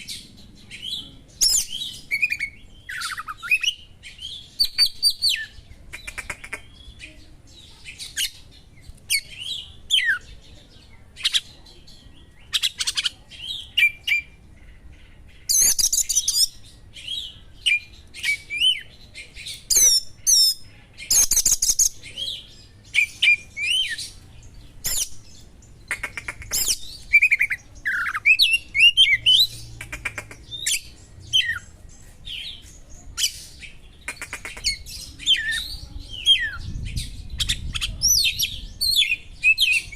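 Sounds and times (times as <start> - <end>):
rapid bird trills: 1.4 - 7.1, 19.4 - 31.8, 33.2 - 35.7
songbird chirps and whistles: 15.4 - 18.9, 26.0 - 29.5.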